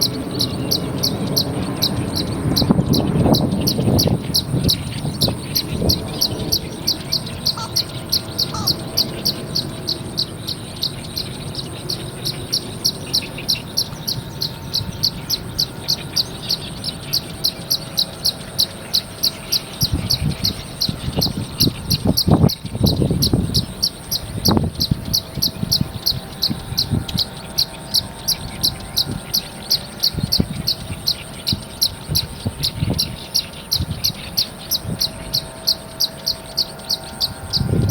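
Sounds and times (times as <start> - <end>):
insect chirring: 0.0 - 37.9
short bird notes: 5.5 - 9.4.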